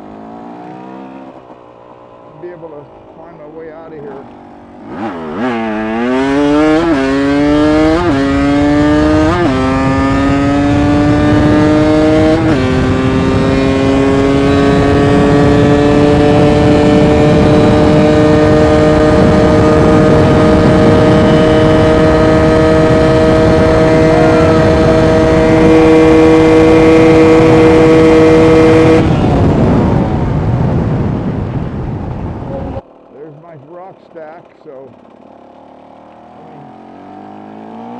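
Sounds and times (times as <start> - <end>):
dirt bike engine accelerating: 0.0 - 37.9
wind rush: 4.8 - 32.8.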